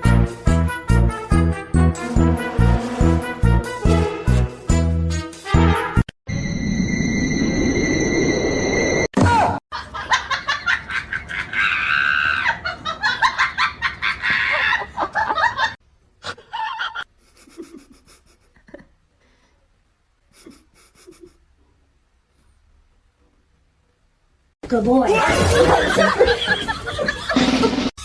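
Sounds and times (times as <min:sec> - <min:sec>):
person laughing hard: 0:25.4 - 0:27.9.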